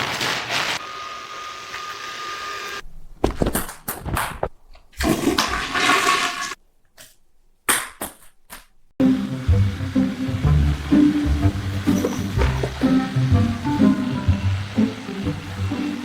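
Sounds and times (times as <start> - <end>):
music: 9.0 - 16.0
rushing water: 9.9 - 16.0.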